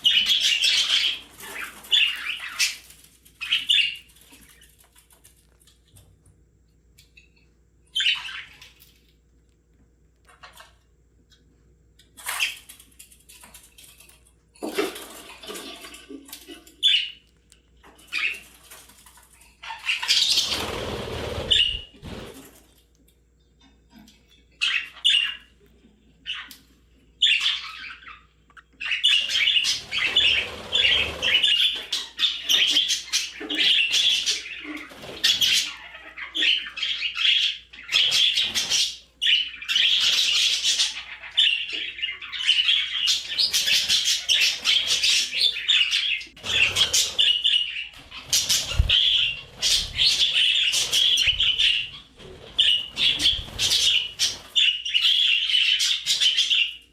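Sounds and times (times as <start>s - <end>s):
budgerigars chirping: 0.0s - 4.1s, 7.9s - 8.6s, 18.1s - 18.5s, 19.6s - 21.9s, 24.6s - 25.5s, 27.2s - 56.8s.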